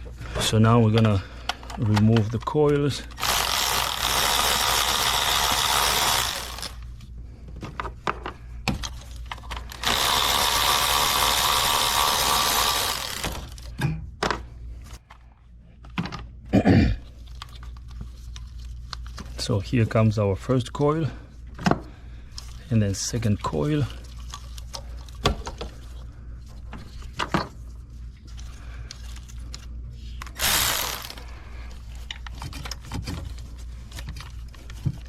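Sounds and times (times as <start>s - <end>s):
power tool spinning bolts: 3.1s - 6.9s, 9.6s - 13.7s, 30.2s - 31.3s.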